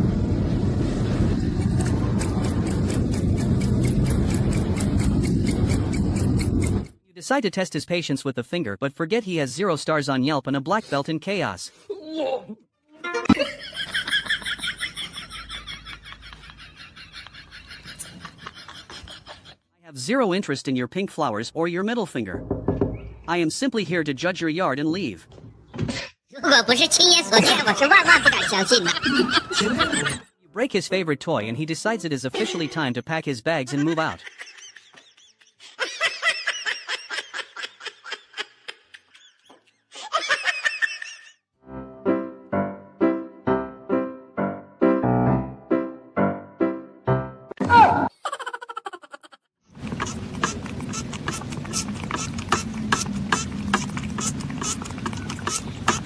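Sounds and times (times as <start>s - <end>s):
high-pitched laughing: 13.0s - 19.6s, 26.4s - 30.2s, 33.7s - 41.4s, 47.6s - 49.5s
animal chattering call: 50.0s - 56.0s.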